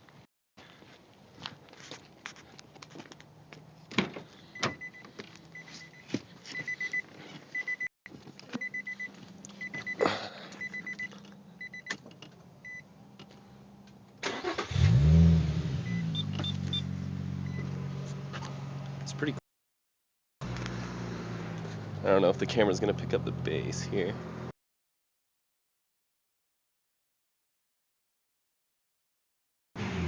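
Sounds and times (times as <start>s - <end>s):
car engine cranking and idling: 2.7s - 19.3s, 20.4s - 24.1s
car warning chime beeping: 4.5s - 7.9s, 8.6s - 12.0s, 12.6s - 12.9s, 15.8s - 16.8s.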